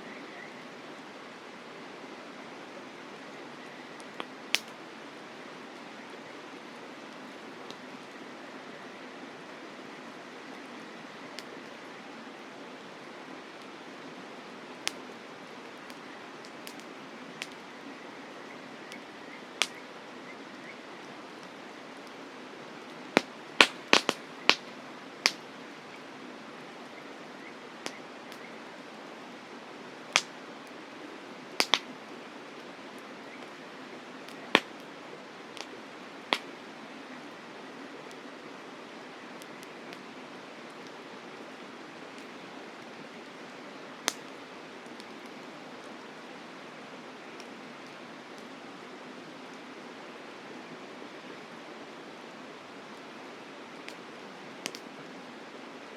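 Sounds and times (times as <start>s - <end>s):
soft fire hiss: 0.0s - 55.9s
campfire crackling: 0.1s - 55.9s.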